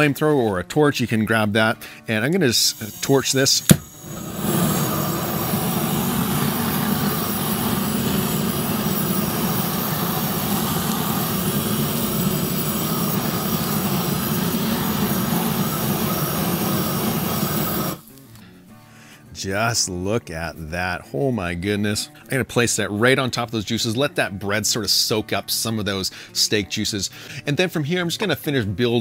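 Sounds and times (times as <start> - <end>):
gas torch flame rushing: 2.7 - 18.0.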